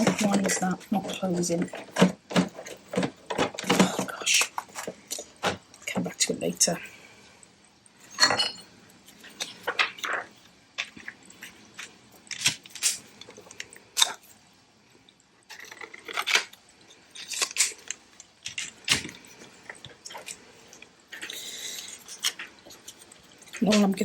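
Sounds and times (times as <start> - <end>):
plastic sheets crinkling: 0.0 - 6.6, 15.5 - 24.0.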